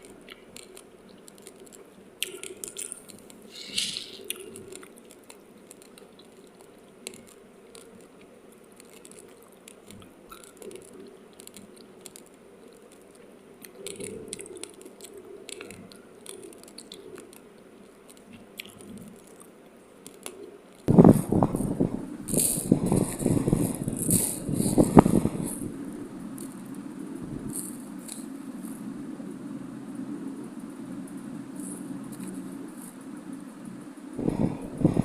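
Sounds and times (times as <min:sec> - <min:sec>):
rice grains crunching when chewed: 0:00.0 - 0:26.8, 0:27.4 - 0:28.8
soft chewing: 0:00.0 - 0:28.9.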